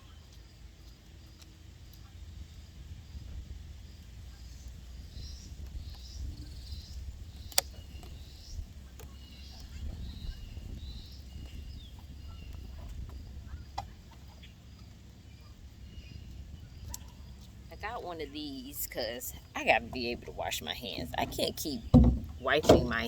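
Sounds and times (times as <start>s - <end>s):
faint bird chirps: 4.3s - 17.5s.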